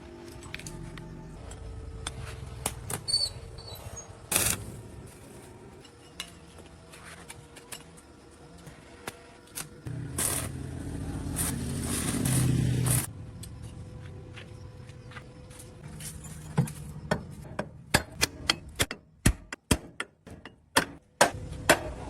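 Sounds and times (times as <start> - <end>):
sharp metal knocks: 16.5 - 21.9.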